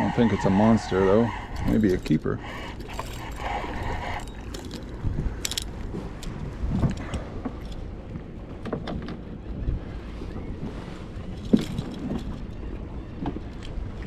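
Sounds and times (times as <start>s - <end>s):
wind buffeting microphone: 0.0s - 14.0s
light clicks and rattles: 1.5s - 7.9s, 11.3s - 12.6s.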